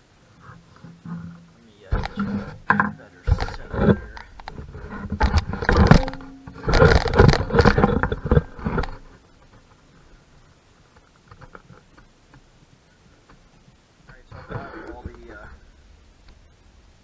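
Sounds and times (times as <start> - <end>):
faint clicks: 6.0 - 16.5.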